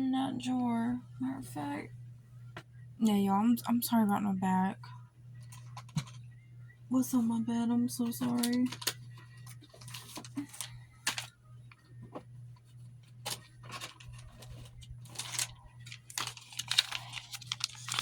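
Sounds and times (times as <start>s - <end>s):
packet rustling: 8.1s - 11.3s, 13.2s - 18.0s.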